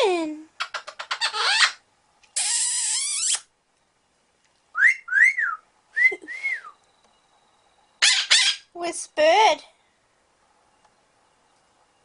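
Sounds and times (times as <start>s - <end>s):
parrot squawking: 0.6s - 1.8s, 2.4s - 3.5s, 8.0s - 8.7s
parrot whistles: 2.4s - 3.5s, 4.8s - 6.8s, 8.0s - 8.7s.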